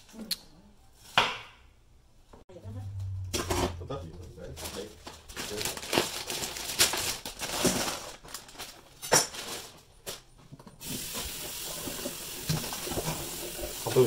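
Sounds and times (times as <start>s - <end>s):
tap water running into sink: 10.8s - 14.0s.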